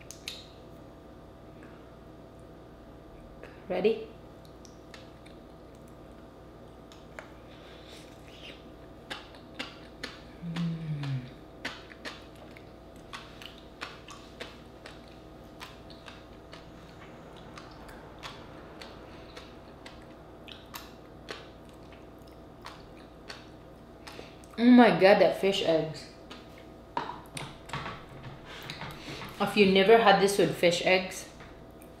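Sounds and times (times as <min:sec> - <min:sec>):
wet chewing clicks and pops: 0:00.0 - 0:00.6, 0:04.4 - 0:07.4, 0:08.2 - 0:24.6
person humming mmm: 0:10.2 - 0:11.4.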